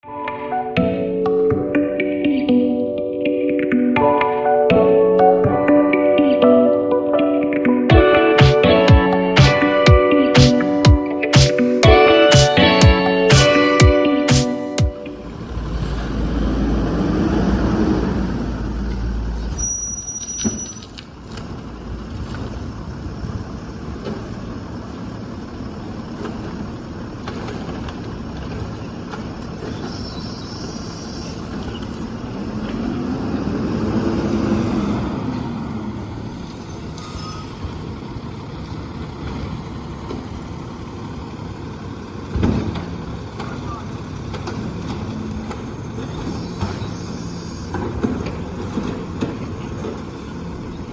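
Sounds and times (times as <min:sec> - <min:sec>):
diesel truck engine revving: 0:11.9 - 0:50.9.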